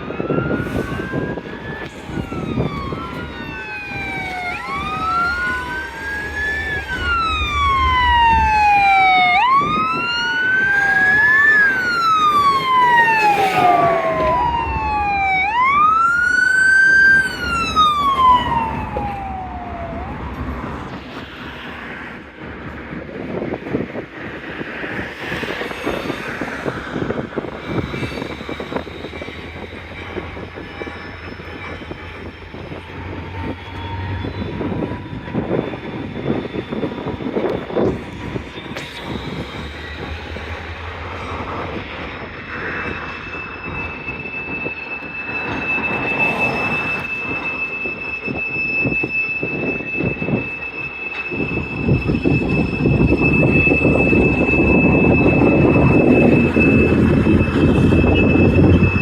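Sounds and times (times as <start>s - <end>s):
freight cars rumbling: 0.0s - 59.0s
steel wheel squeal: 24.8s - 59.0s.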